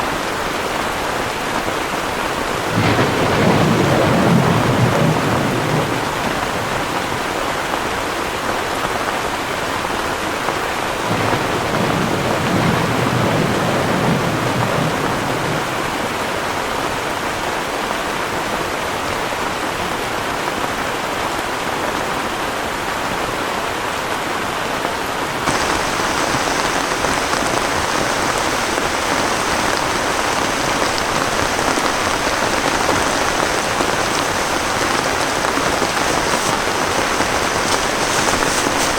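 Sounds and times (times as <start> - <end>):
heavy rain falling: 0.0 - 38.9
low thunder rumble: 2.4 - 7.4, 11.0 - 16.8, 25.5 - 38.9.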